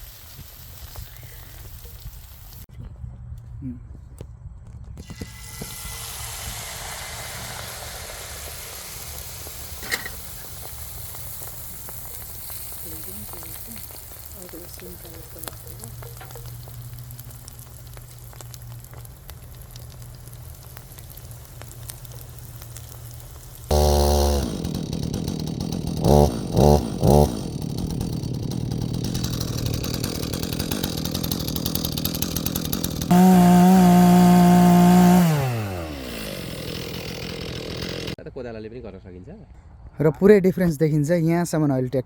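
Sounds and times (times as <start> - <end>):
steady hiss: 0.0 - 2.7, 5.1 - 23.8
distant tractor engine: 5.1 - 22.2, 23.7 - 38.2
engine revving up and down: 23.7 - 38.2.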